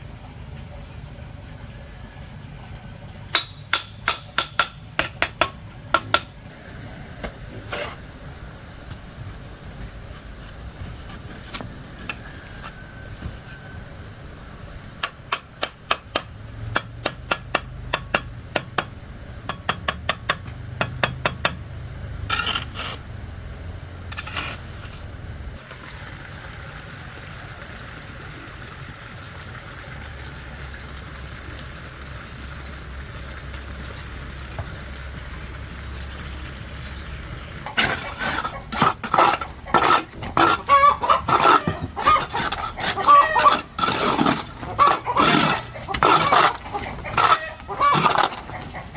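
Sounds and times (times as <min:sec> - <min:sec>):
chickens clucking: 0:37.6 - 0:48.9
geese honking: 0:38.5 - 0:48.9.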